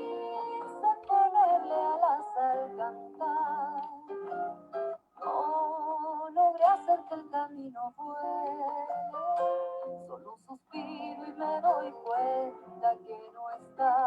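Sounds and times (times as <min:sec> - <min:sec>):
person singing with vibrato: 0:00.0 - 0:04.2, 0:05.2 - 0:14.0
instrumental accompaniment: 0:00.0 - 0:14.0.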